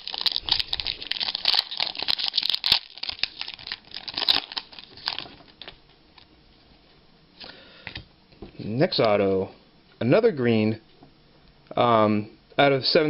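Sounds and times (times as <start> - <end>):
foil wrappers crinkling and tearing: 0.0 - 6.3.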